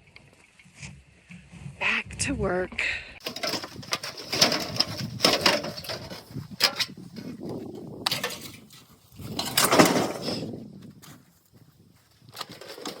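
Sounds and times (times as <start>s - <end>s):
wood knocking and clattering: 3.2s - 7.4s
scraping: 3.2s - 10.6s.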